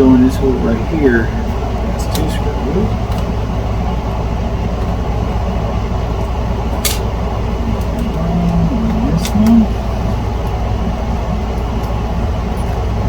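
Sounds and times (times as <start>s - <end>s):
low hum of machinery: 0.0s - 13.0s
sharp click: 6.8s - 7.1s.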